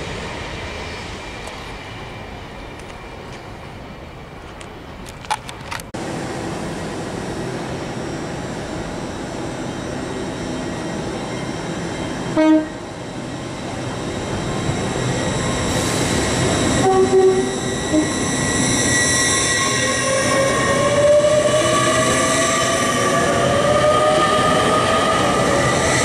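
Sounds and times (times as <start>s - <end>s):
train rushing past: 6.0s - 26.0s
train horn blasts: 12.3s - 12.9s, 16.7s - 18.2s.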